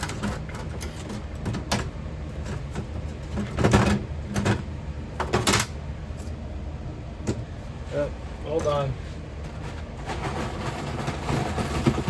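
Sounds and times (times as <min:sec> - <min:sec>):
knocks and clatters of objects: 0:00.0 - 0:05.7, 0:09.4 - 0:12.0
low rumble of furnace: 0:00.0 - 0:12.0.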